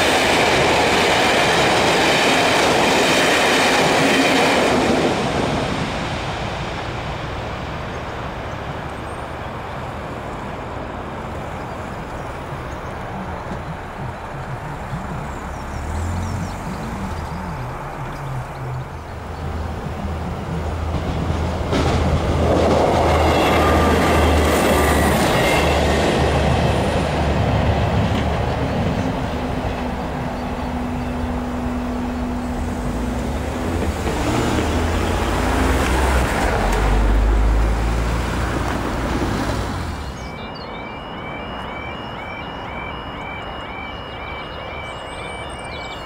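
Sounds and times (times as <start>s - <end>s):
cars driving across: 0.0s - 46.0s
train engine and wheels: 0.0s - 46.0s
crossing alarm chirping: 11.4s - 21.0s, 22.8s - 35.7s, 39.8s - 46.0s.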